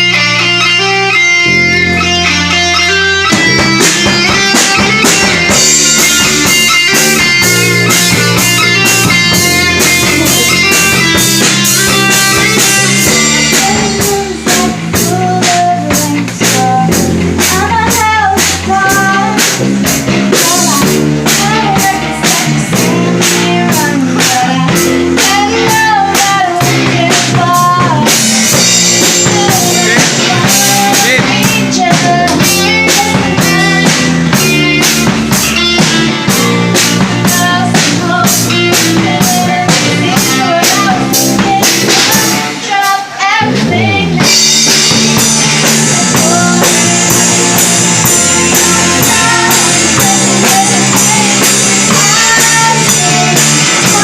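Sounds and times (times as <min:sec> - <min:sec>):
rock band playing: 0:00.0 - 0:54.0
lead vocalist singing: 0:08.6 - 0:19.7, 0:20.3 - 0:34.4, 0:37.0 - 0:54.0.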